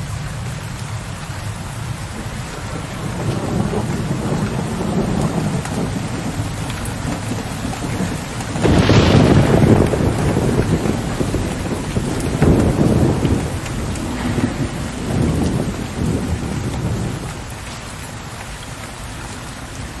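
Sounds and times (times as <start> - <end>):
steady rain: 0.0 - 20.0
distant thunder rumble: 1.7 - 18.3.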